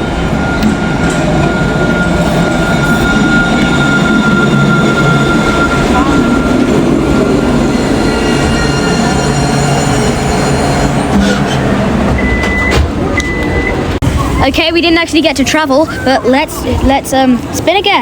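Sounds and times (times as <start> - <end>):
high electric whine: 0.0 - 12.4
tram rumbling: 0.0 - 18.0.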